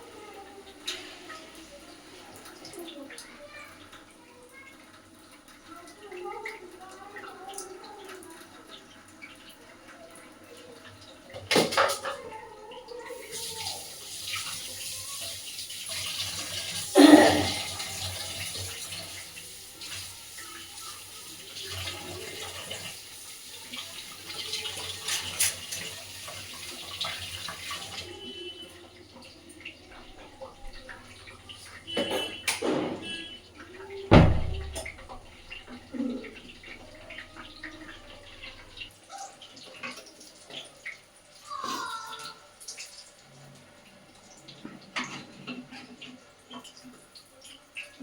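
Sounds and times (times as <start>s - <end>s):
tap running into sink: 34.1s - 38.1s.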